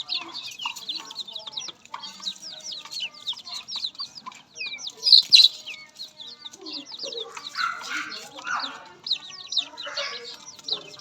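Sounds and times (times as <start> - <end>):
flock of birds chirping: 0.0 - 11.0.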